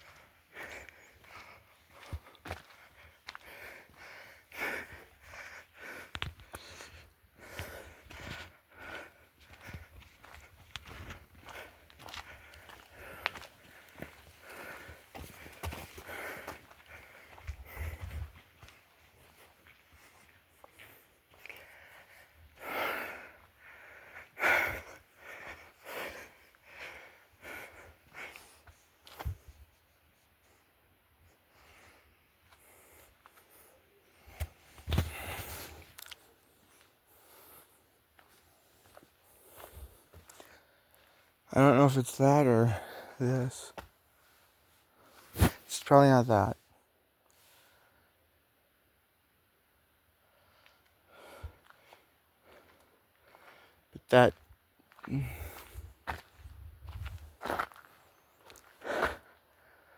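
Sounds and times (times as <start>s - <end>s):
person breathing: 0.0s - 18.4s, 19.1s - 29.4s, 31.4s - 38.0s, 38.8s - 41.4s, 47.3s - 48.2s, 50.2s - 53.9s, 54.9s - 59.9s
footsteps on a trail: 0.0s - 41.6s, 42.4s - 45.8s, 50.4s - 59.9s.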